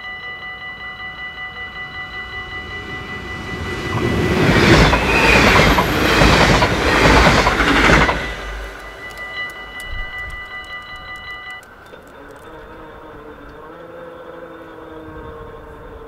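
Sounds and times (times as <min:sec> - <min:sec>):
level-crossing bell ringing: 0:00.0 - 0:12.0
train wheels clattering over rails: 0:02.8 - 0:12.5.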